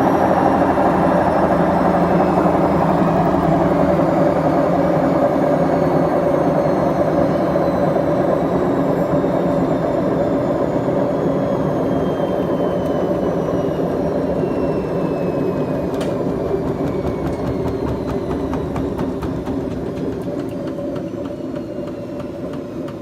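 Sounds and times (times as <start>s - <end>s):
washing machine drum rumbling: 16.1s - 23.0s.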